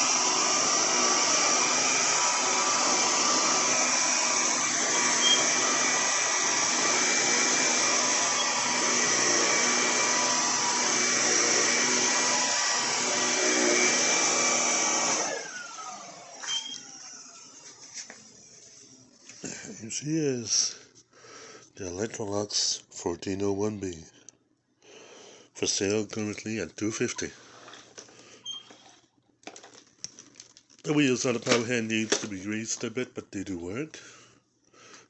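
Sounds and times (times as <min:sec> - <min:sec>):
vacuum cleaner running: 0:00.0 - 0:19.7.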